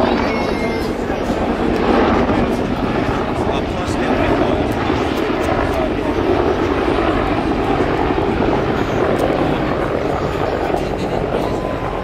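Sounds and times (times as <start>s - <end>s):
helicopter flying by: 0.0s - 12.0s.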